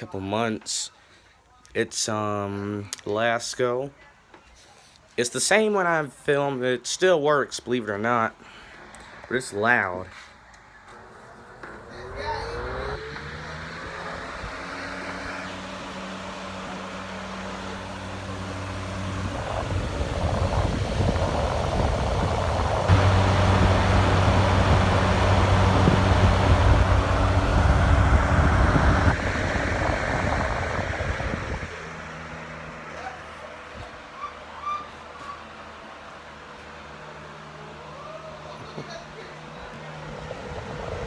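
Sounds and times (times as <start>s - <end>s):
box fan running: 11.0s - 41.0s.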